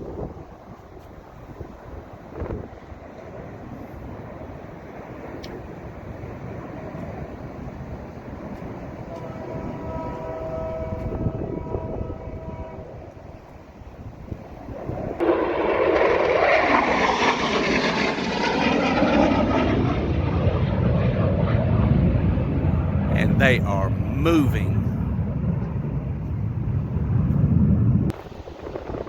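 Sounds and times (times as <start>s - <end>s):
fighter jets flying over: 14.1s - 28.8s.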